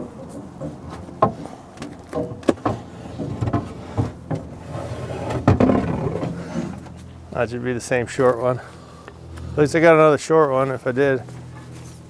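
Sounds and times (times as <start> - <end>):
fence poles knocking: 0.0 - 7.4
rustling and scraping: 0.0 - 12.0.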